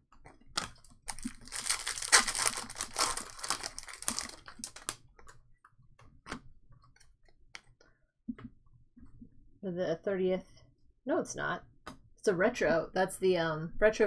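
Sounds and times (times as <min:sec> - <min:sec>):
wrapper crinkling and rustling: 0:00.5 - 0:05.0.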